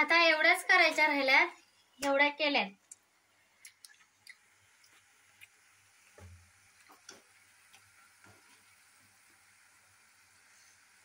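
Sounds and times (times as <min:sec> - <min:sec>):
faint clicks and light taps: 0:02.8 - 0:05.6.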